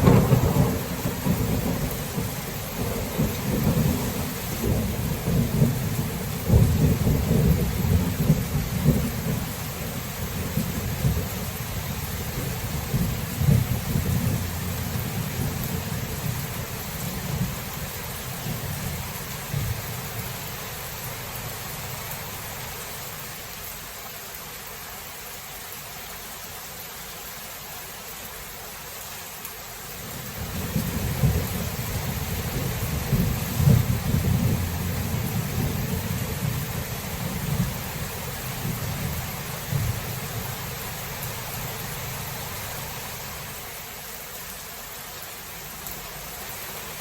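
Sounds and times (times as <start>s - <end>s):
rolling thunder: 0.0s - 20.3s, 30.3s - 40.8s
rain hiss: 0.0s - 47.0s.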